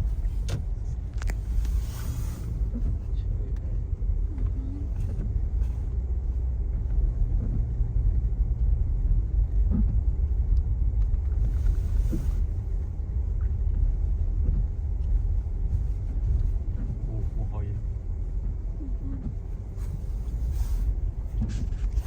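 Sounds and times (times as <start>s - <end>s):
car cabin road and engine rumble: 0.0s - 22.0s.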